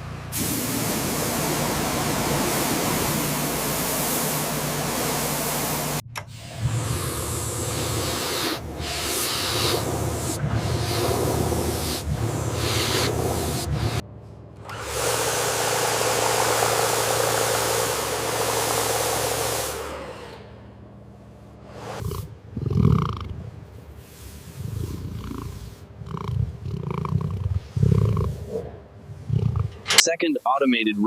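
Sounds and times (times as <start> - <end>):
water spraying: 0.0 - 14.0, 14.7 - 20.5
lion growling: 6.5 - 14.0, 21.7 - 30.1.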